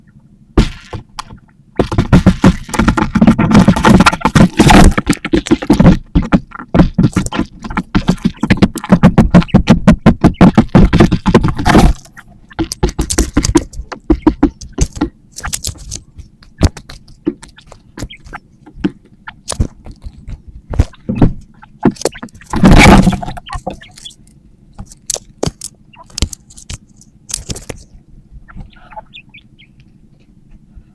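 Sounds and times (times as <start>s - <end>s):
materials scraping and clattering: 0.6s - 18.9s, 19.5s - 24.2s
clicks and knocks: 0.6s - 24.2s.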